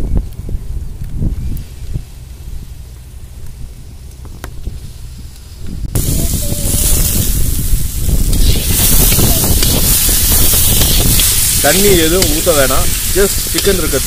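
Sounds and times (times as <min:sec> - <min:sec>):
chicken frying in hot oil: 0:06.0 - 0:14.0.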